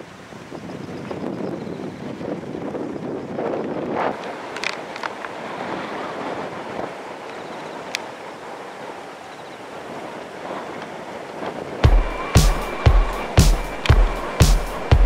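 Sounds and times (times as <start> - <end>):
strong gusty wind: 0.0 - 15.0
sharp clicks: 12.2 - 15.0.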